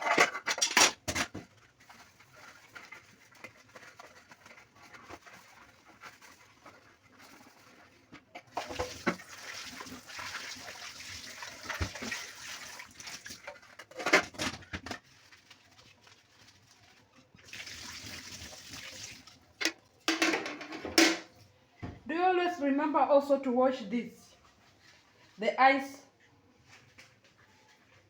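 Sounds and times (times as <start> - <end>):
water splashing and sloshing: 1.2 - 20.6.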